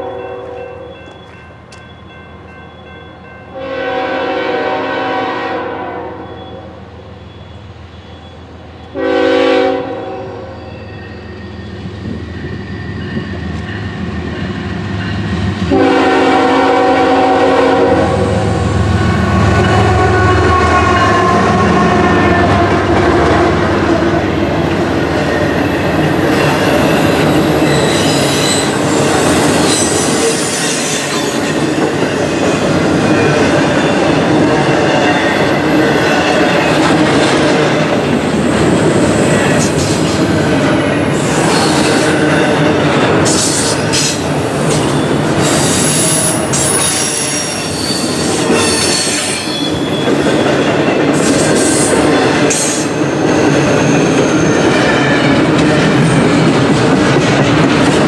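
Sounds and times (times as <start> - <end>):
train wheels clattering and squealing: 0.0 - 3.4, 6.2 - 9.0, 10.2 - 15.9, 22.3 - 58.0
train horn blasts: 3.5 - 6.8, 8.9 - 10.9, 15.7 - 23.0
locomotive passing: 6.4 - 58.0.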